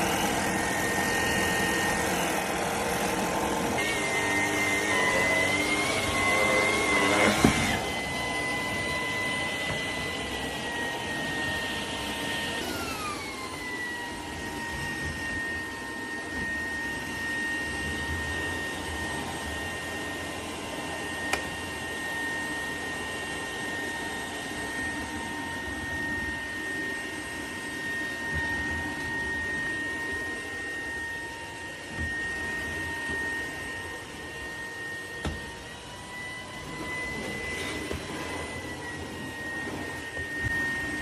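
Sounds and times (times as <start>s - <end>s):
vacuum cleaner motor whining: 0.0s - 41.0s
click: 21.3s - 21.5s.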